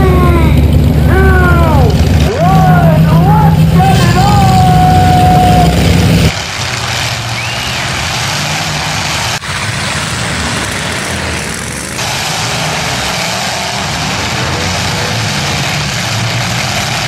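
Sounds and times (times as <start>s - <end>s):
car engines running and revving: 0.0s - 17.0s.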